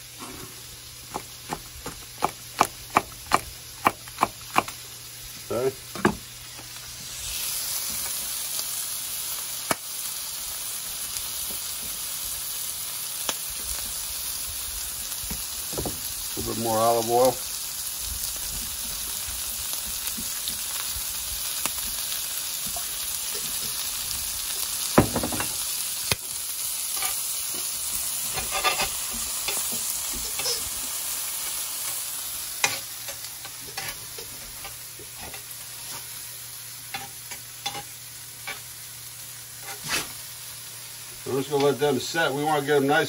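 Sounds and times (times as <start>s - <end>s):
food sizzling in a skillet: 0.0s - 43.0s
metal tongs clicking on pan: 36.9s - 38.6s.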